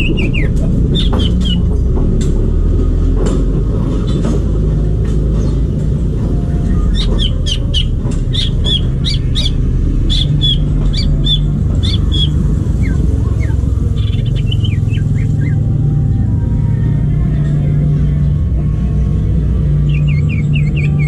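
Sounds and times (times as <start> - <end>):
loud low rumble: 0.0 - 21.0
bird singing sharp high notes: 6.6 - 15.6.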